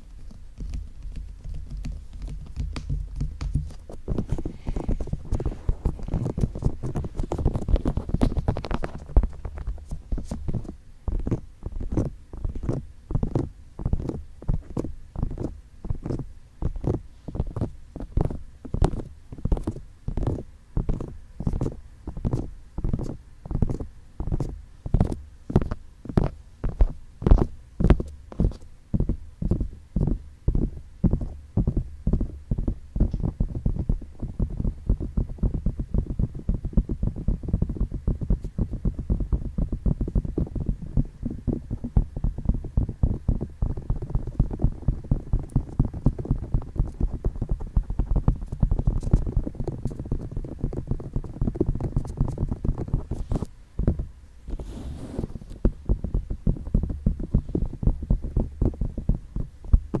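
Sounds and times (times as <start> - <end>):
fingertips tapping a microphone: 0.0 - 60.0.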